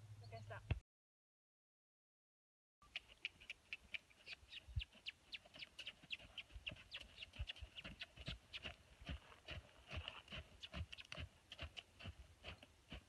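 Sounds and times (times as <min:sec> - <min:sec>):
birds chirping: 0:00.1 - 0:00.7, 0:02.8 - 0:09.2.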